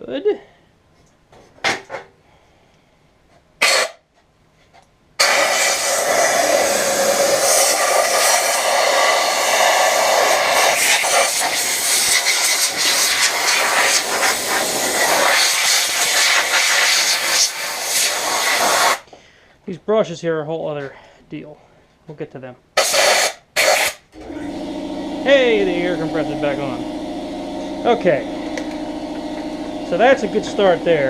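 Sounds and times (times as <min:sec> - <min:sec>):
compressed air blow gun blasting: 0:03.6 - 0:04.0, 0:05.2 - 0:19.1, 0:22.8 - 0:24.0.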